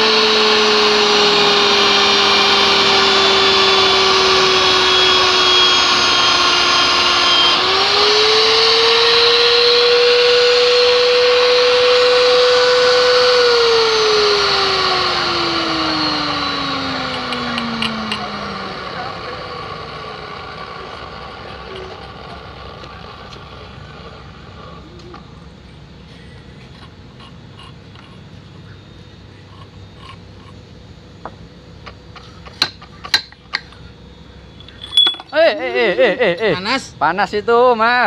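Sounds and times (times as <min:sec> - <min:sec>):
pipe-threading machine motor whine: 0:00.0 - 0:38.0.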